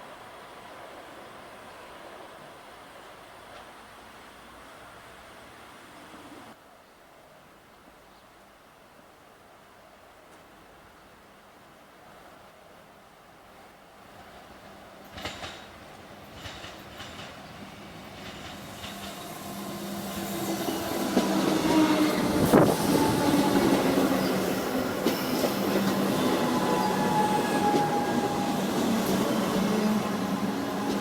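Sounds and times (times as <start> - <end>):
train hum and whine: 0.0 - 6.6, 12.0 - 31.0
electric train passing: 14.1 - 31.0
train wheels clicking over rail joints: 14.2 - 31.0.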